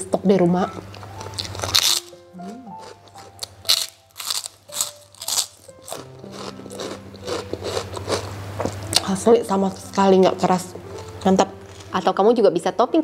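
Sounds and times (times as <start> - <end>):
soft background music: 0.0 - 13.0
crunchy pork skin being chewed: 0.9 - 9.1.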